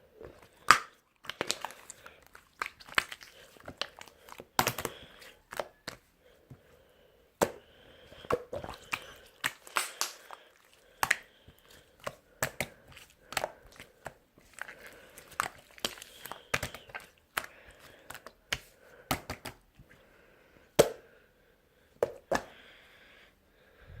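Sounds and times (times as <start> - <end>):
crinkling handling noise: 0.0 - 6.8, 8.0 - 20.1
person breathing roughly: 0.3 - 2.4, 3.1 - 24.0.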